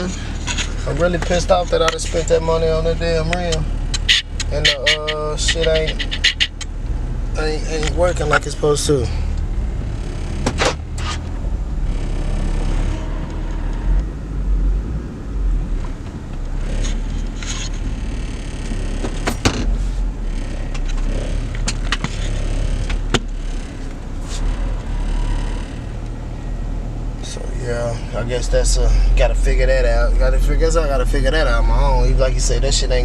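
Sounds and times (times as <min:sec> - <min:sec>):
car rumble: 0:00.0 - 0:33.0
sharp clicks and knocks: 0:10.2 - 0:11.4, 0:15.8 - 0:24.9.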